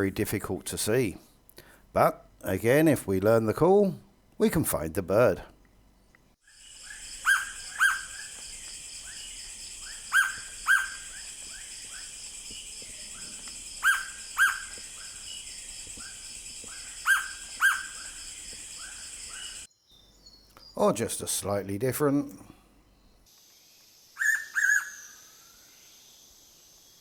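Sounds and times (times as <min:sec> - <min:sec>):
steady high-pitched hiss: 0:00.0 - 0:27.0
bird double whistle call: 0:07.2 - 0:08.3.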